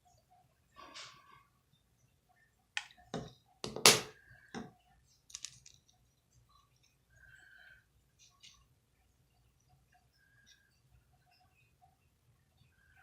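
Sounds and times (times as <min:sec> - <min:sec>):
small hard objects clicking: 0:05.3 - 0:05.9.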